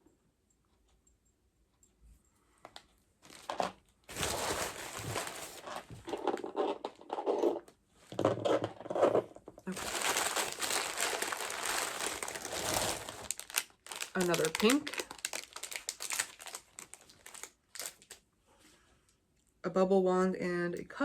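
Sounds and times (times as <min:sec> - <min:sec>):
packaging crackling and rustling: 0:03.2 - 0:07.6, 0:09.7 - 0:18.2.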